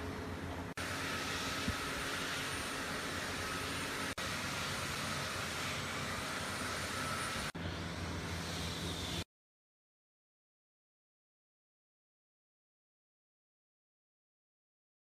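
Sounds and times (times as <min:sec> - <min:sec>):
electric power tool whirring: 0:00.8 - 0:09.2.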